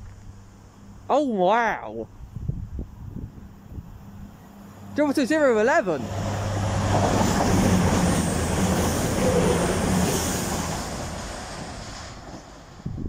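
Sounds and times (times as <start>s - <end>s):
train wheels rushing on rail: 5.7s - 13.0s.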